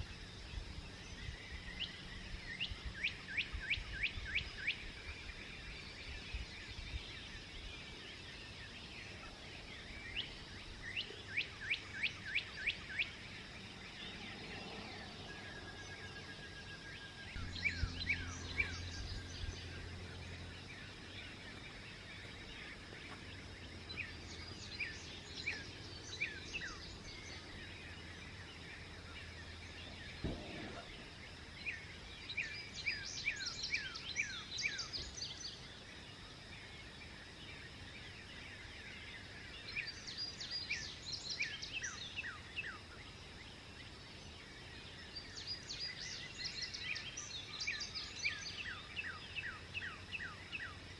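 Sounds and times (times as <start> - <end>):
outdoor background hiss: 0.0 - 50.9
songbirds chirping: 0.0 - 50.9
low hum: 13.8 - 24.8
short thud: 30.2 - 31.0.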